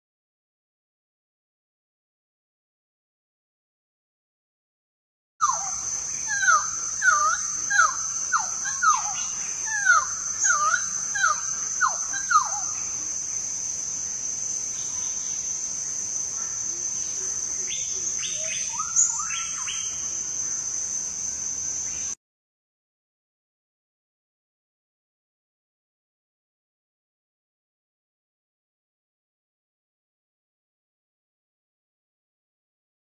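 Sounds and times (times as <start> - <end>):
bird whistling song: 5.4 - 12.8, 17.7 - 20.1
high-pitched insect drone: 5.4 - 22.2.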